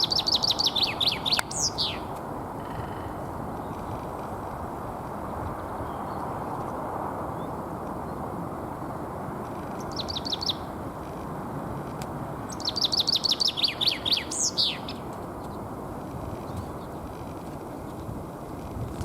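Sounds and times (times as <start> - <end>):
chaffinch singing: 0.0 - 4.2, 9.6 - 10.8, 12.4 - 17.3.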